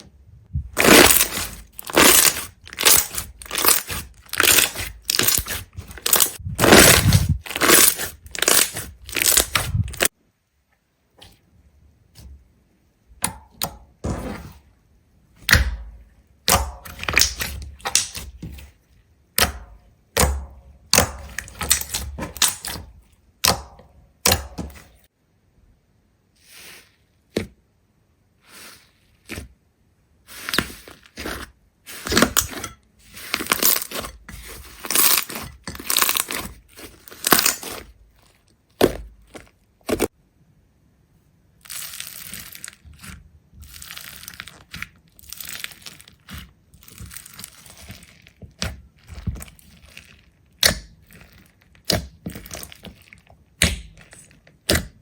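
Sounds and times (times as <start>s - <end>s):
brittle material crunching: 0.6s - 10.1s, 30.3s - 40.1s, 41.6s - 55.0s.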